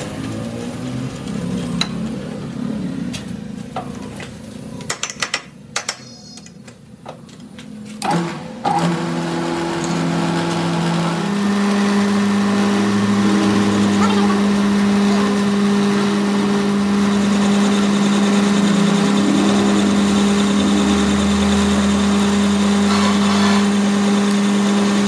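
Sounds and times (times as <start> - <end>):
electric motor humming: 8.7 - 25.0
machinery running unevenly: 9.5 - 25.0.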